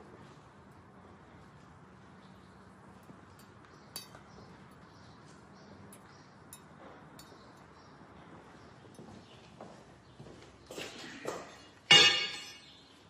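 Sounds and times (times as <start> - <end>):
faint light clicks and clinks: 2.9 - 5.0, 5.9 - 7.8.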